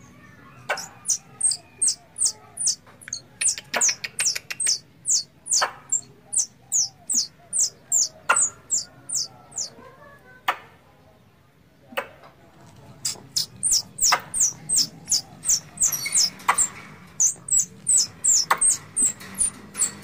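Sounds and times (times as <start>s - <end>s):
sharp clicks: 0.7s - 6.1s, 13.0s - 20.0s
squirrel call chirps: 0.7s - 9.7s, 13.0s - 20.0s.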